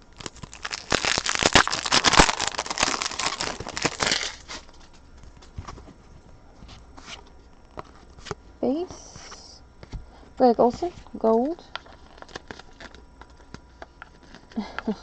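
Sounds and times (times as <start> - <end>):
wrapper tearing and crinkling: 0.0 - 4.9, 11.8 - 13.6.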